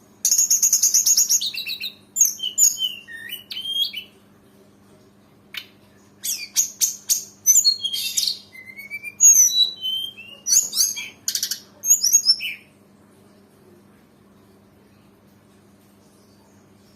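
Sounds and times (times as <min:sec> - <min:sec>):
bird singing chirps and trills: 0:00.2 - 0:04.2, 0:05.6 - 0:12.8.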